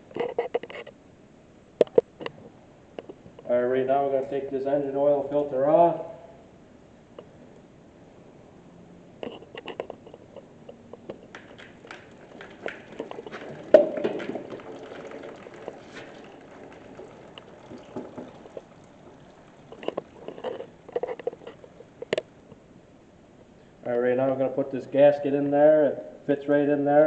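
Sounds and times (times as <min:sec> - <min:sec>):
tools clicking and knocking on metal: 0:11.0 - 0:13.9
oil running: 0:11.0 - 0:22.8.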